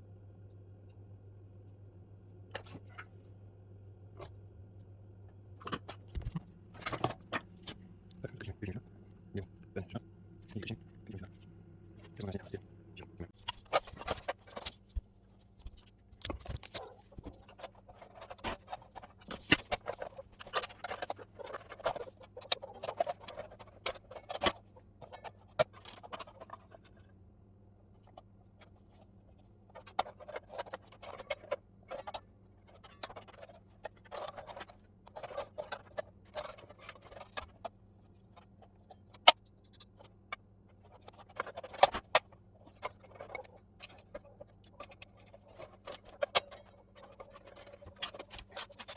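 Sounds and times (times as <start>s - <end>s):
faint steady hum: 0.0s - 48.9s
tools and parts clicking and scraping: 5.6s - 8.2s, 29.8s - 48.9s.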